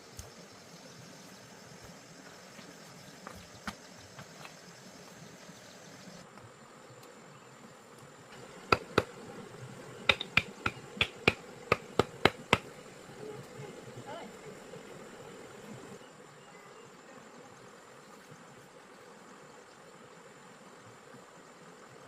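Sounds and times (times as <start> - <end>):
faint steady hiss: 0.0 - 22.0
sharp clicks or taps: 10.1 - 12.7.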